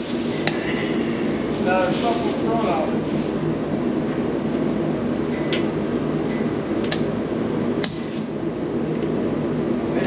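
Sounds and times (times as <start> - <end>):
machine droning: 0.0 - 10.0.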